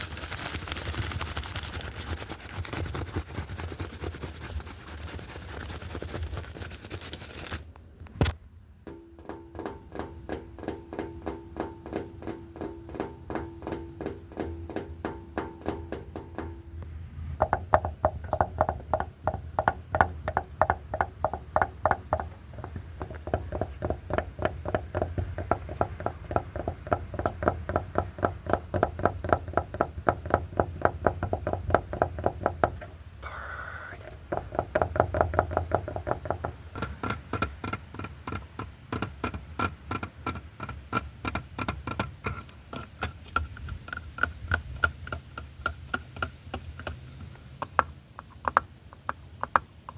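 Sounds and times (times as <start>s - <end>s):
wooden bat tapping hard objects: 8.8s - 32.9s, 34.1s - 49.9s.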